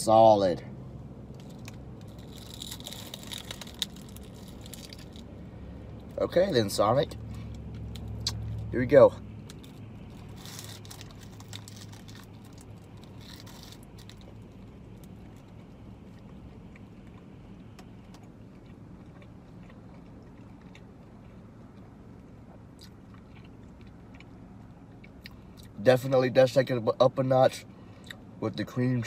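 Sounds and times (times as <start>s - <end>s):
steady low hum: 0.0s - 29.0s
crunchy bite rustle: 1.2s - 8.7s, 9.3s - 25.7s
quiet chewing: 9.4s - 25.7s.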